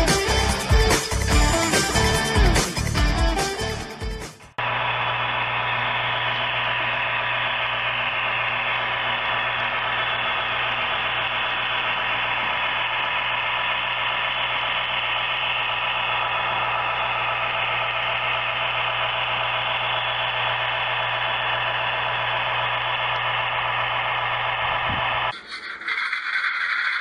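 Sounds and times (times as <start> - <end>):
diesel engine idle from small speaker: 4.6 - 25.3.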